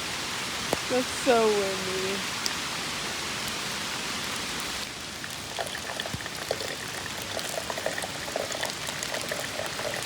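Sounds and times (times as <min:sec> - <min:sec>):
rain hissing: 0:00.0 - 0:10.0
water boiling with bubbling pops: 0:05.2 - 0:10.0.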